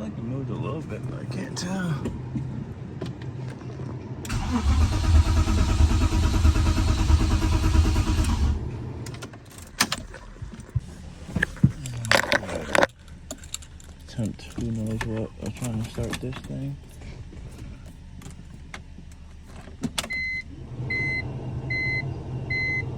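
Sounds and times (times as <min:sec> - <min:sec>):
car engine cranking: 0:04.2 - 0:22.8
light clicks and knocks: 0:09.1 - 0:20.1.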